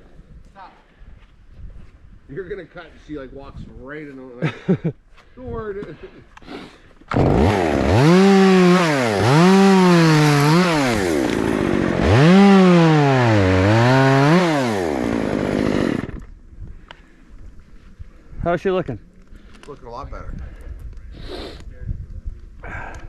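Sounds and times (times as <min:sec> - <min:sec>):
chainsaw cutting wood: 0:07.1 - 0:16.4.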